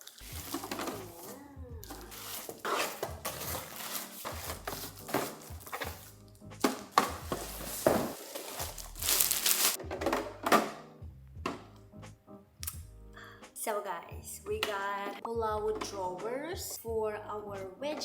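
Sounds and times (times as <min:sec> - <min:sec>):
packaging crinkling: 0:00.0 - 0:09.8
background music: 0:00.0 - 0:18.0
plastic drawers knocking: 0:00.3 - 0:08.8, 0:09.8 - 0:10.8.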